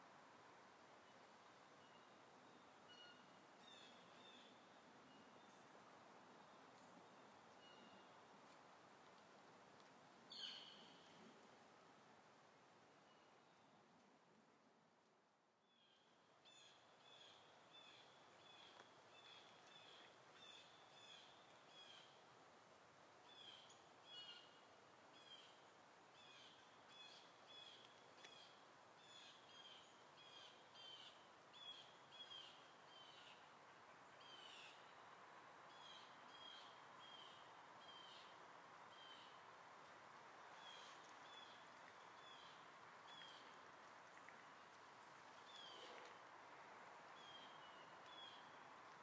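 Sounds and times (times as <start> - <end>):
faint bird chirping: 1.0 - 5.7, 6.4 - 8.2, 10.3 - 11.2, 15.6 - 22.2, 23.2 - 35.0, 35.7 - 39.4, 40.5 - 46.1.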